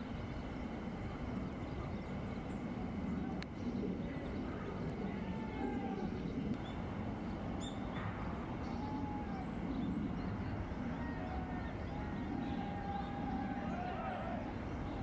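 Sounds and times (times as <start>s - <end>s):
faint bird calls: 7.5s - 15.0s.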